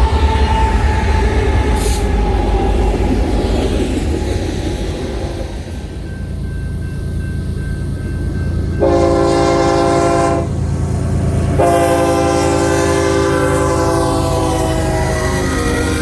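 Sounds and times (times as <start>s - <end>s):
train rumble: 0.0s - 16.0s
locomotive horn blasts: 8.8s - 10.6s, 11.6s - 16.0s.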